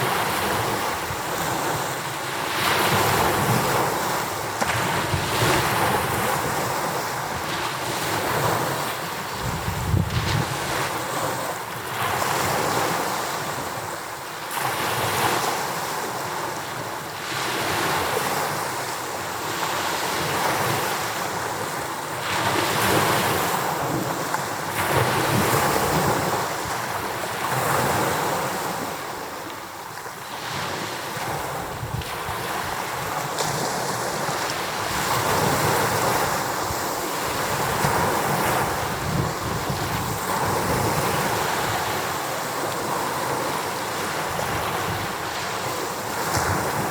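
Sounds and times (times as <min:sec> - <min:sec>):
waves pounding the shore: 0:00.0 - 0:46.9
wind buffeting microphone: 0:02.8 - 0:12.9, 0:30.6 - 0:46.9.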